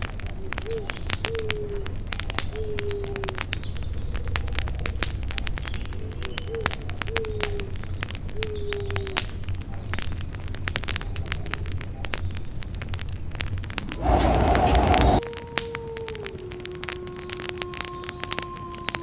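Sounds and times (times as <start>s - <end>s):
campfire crackling and popping: 0.0s - 19.0s
loud noisy rush: 13.8s - 15.2s.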